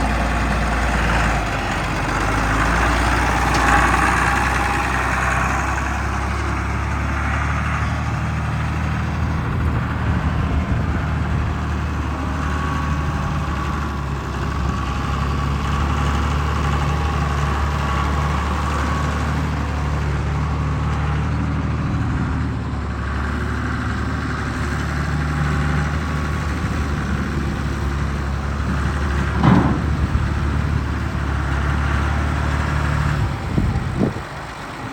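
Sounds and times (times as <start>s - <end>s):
diesel tractor engine idling: 0.0s - 34.9s
short knock: 29.3s - 30.6s.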